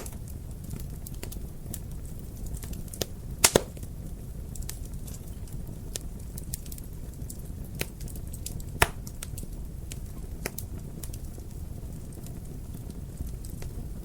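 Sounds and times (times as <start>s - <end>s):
sharp fire pops and snaps: 0.0s - 14.0s
wood fire crackling: 0.0s - 14.0s.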